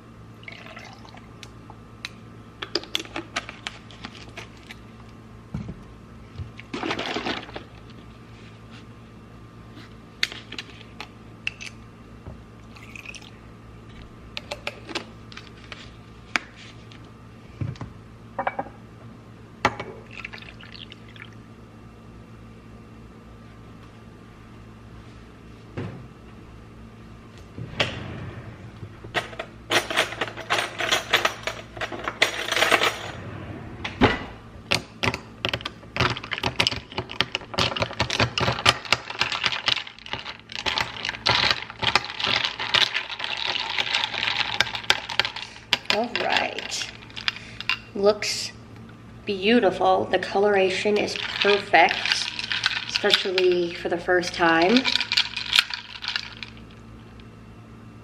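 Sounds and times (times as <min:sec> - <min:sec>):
coffee pouring into cup: 0:00.4 - 0:01.2, 0:12.7 - 0:13.4.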